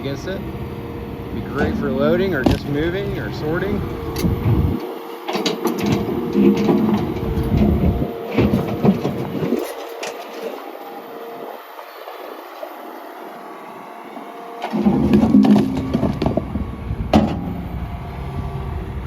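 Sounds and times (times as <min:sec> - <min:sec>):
excavator engine rumble: 0:00.0 - 0:19.0
excavator hydraulics whining: 0:00.0 - 0:19.0.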